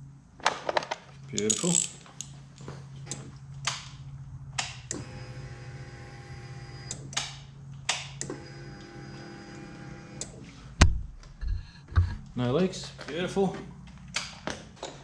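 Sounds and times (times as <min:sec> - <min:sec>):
low hum: 0:01.5 - 0:12.6.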